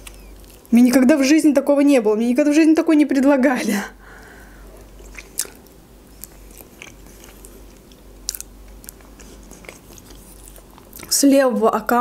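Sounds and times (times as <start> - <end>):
close chewing mouth sounds: 0.0 - 0.7, 4.8 - 11.2
sharp mouth clicks and smacks: 5.0 - 11.1.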